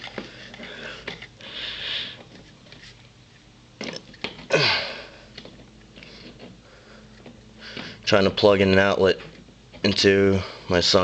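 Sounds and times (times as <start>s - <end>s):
grunt falling in pitch: 4.5s - 5.1s.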